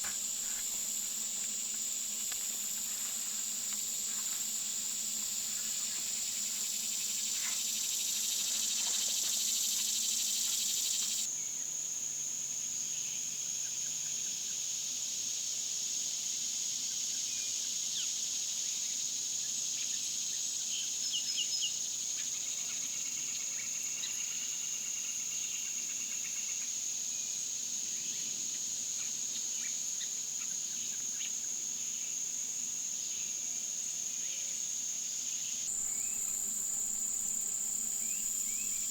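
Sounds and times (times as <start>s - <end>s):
broad hiss: 0.0s - 11.3s, 35.7s - 38.9s
insects trilling: 0.0s - 11.3s, 35.7s - 38.9s.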